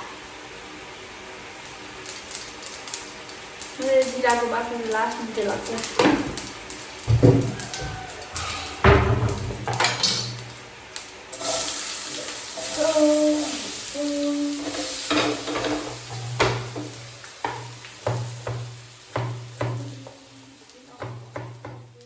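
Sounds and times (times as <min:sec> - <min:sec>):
hiss: 0:05.7 - 0:09.6, 0:11.0 - 0:16.6
utensil knocking on metal pan: 0:07.1 - 0:08.0, 0:08.8 - 0:10.4, 0:15.2 - 0:20.2, 0:21.0 - 0:21.9.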